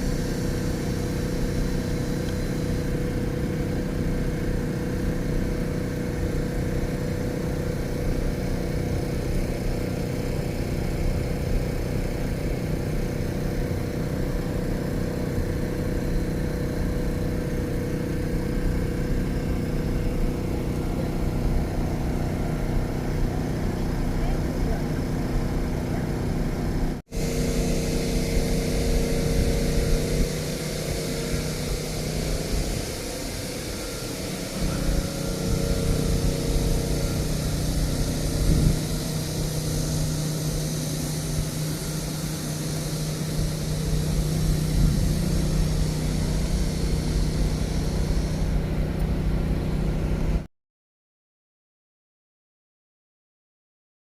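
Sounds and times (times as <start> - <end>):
low traffic engine hum: 0.0 - 50.5
broad hiss: 27.1 - 49.7.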